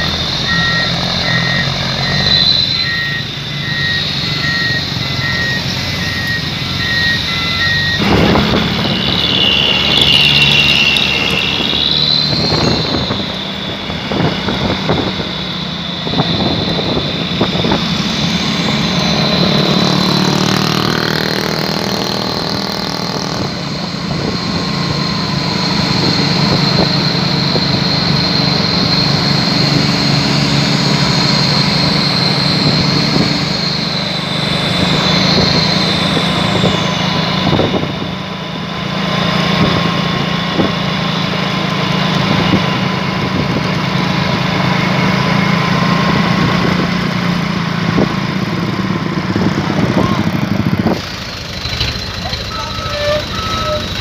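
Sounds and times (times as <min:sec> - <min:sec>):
steady high whine: 0:00.0 - 0:38.5
truck engine revving: 0:00.0 - 0:54.0.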